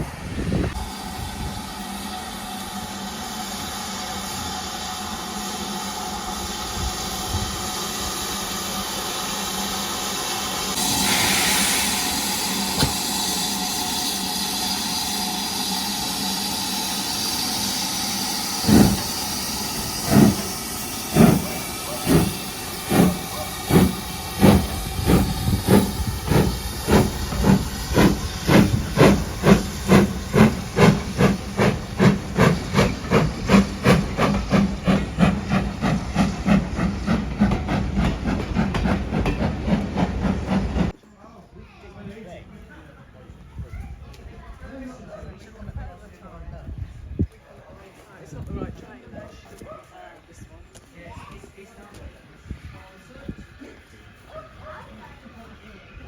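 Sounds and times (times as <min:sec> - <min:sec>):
rush of steam: 0:00.0 - 0:41.0, 0:50.2 - 0:56.0
steam hissing: 0:00.0 - 0:41.0
steam locomotive chuffing: 0:00.0 - 0:41.0.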